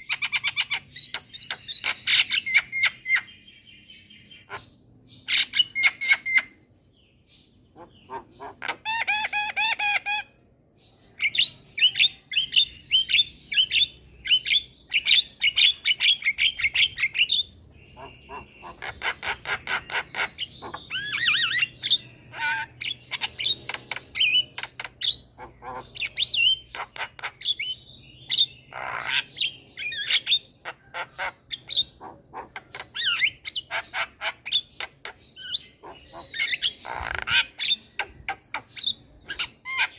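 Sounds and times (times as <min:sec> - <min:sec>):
bird harsh squawk: 0:07.7 - 0:10.4, 0:14.4 - 0:39.9.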